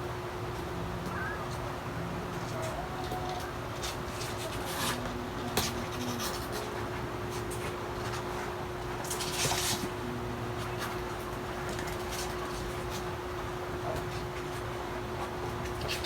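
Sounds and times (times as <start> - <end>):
low electrical hum: 0.0 - 16.0
soft scratching and rustling: 2.3 - 13.2.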